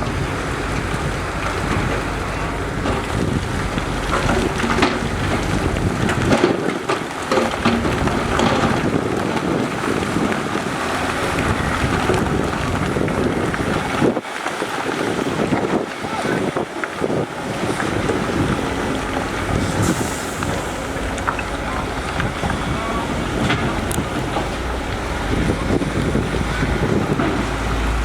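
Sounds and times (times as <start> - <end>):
diesel engine of heavy machinery: 0.0 - 28.0
metal knocks and clanks: 2.7 - 9.1.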